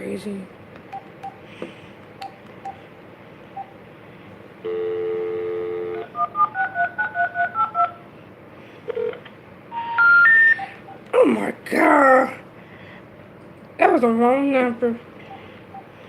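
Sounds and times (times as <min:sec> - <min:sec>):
phone dial tone: 0:04.6 - 0:07.9, 0:09.8 - 0:11.0
touch-tone keypad beeps: 0:09.8 - 0:11.0.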